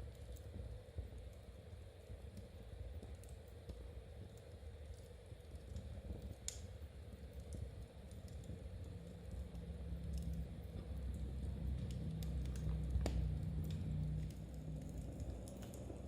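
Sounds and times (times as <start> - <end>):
low steady rumble: 7.1 - 16.0.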